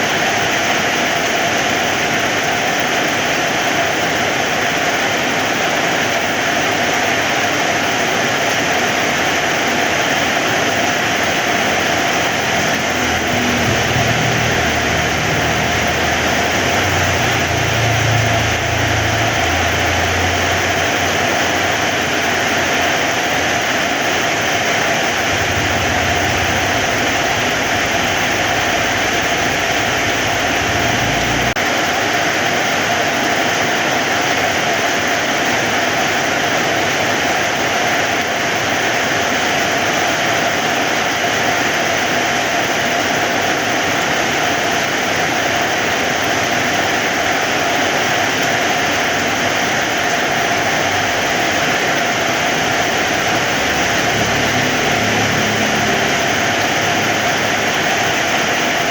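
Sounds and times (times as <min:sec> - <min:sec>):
heavy rain: 0:00.0 - 0:58.9
low rumble: 0:11.6 - 0:23.0, 0:24.6 - 0:31.6.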